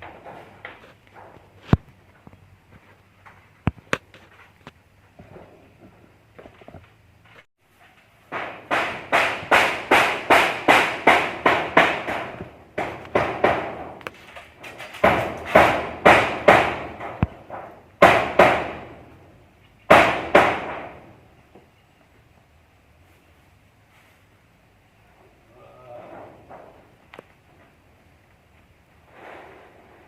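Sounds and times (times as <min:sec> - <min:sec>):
hammer blows: 0:08.2 - 0:19.2, 0:19.9 - 0:21.2.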